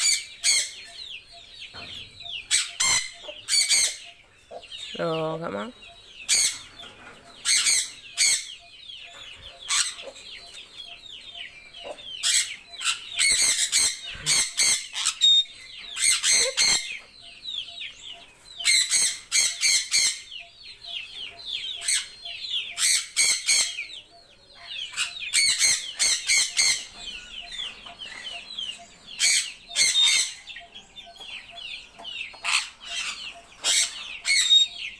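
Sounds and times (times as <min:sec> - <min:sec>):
birds calling: 0:00.0 - 0:34.9.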